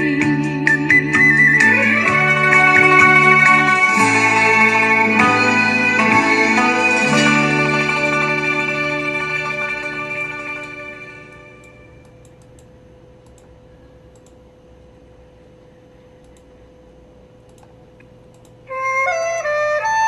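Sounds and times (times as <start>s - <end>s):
melodic instrumental music: 0.0s - 11.8s
faint steady hum: 0.0s - 20.0s.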